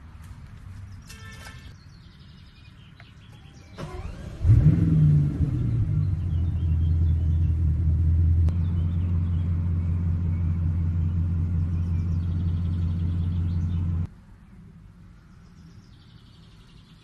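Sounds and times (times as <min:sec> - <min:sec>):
car engine idling: 0:03.8 - 0:14.1.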